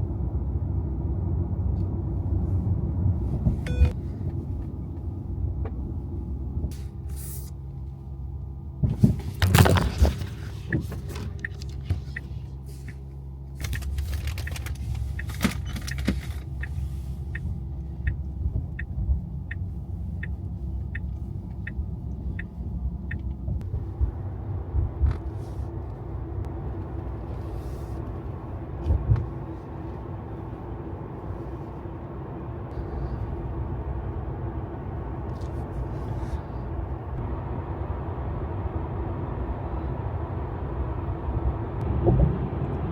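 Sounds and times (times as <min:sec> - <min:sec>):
road and tyre rumble: 0:00.0 - 0:42.9
turn signal ticking: 0:03.4 - 0:05.9, 0:10.6 - 0:13.2, 0:14.4 - 0:25.3.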